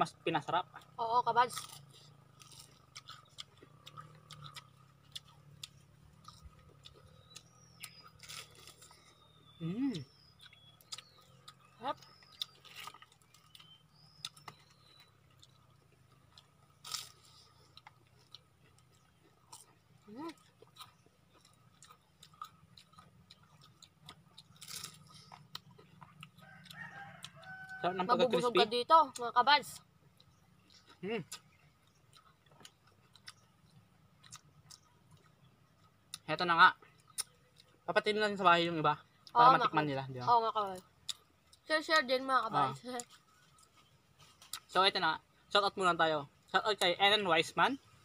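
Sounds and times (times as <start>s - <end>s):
crunching fried leaves: 0.8s - 27.9s.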